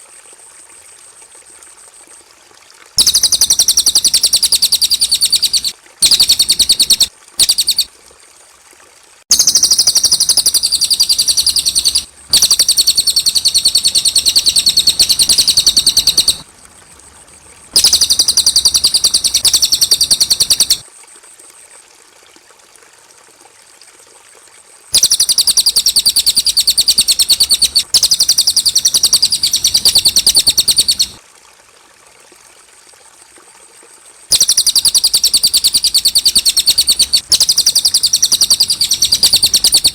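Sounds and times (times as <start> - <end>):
bird singing high trills: 3.0 - 7.9, 9.3 - 16.4, 17.7 - 20.8, 25.0 - 31.2, 34.3 - 39.9.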